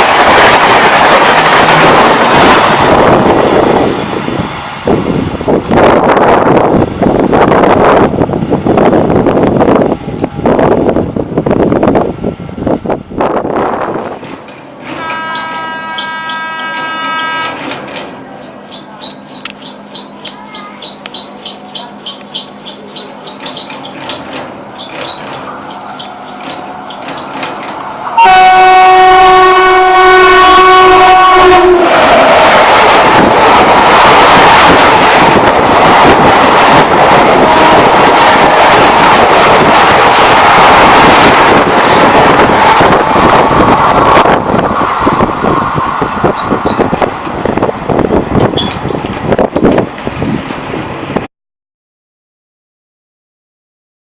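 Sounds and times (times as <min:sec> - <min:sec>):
train coaches rushing and rattling: 0:00.0 - 0:51.3
train wheels clicking over rail joints: 0:14.0 - 0:28.1, 0:31.9 - 0:51.3
train horn blast: 0:14.8 - 0:17.8, 0:28.0 - 0:32.0.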